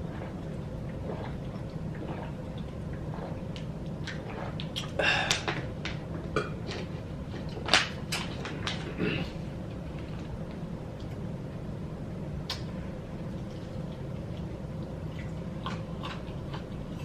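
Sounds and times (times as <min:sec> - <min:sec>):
wet chewing and lip-smacking: 0:13.3 - 0:17.0.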